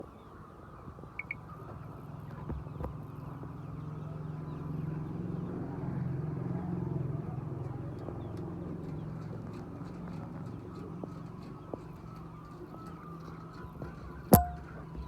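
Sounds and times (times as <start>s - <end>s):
short knocks: 13.8s - 15.0s.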